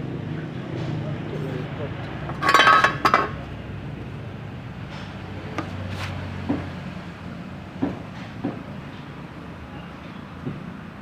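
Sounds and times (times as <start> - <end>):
tools and metal parts clinking: 2.3 - 3.3.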